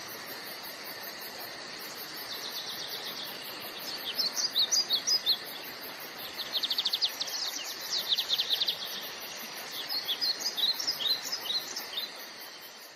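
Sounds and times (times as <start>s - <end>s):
background hiss: 0.0s - 12.9s
birds singing and chirping: 2.3s - 5.6s.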